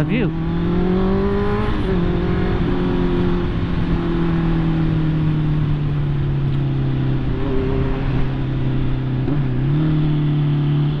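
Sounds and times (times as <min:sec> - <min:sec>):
wind and road rush: 0:00.0 - 0:11.0.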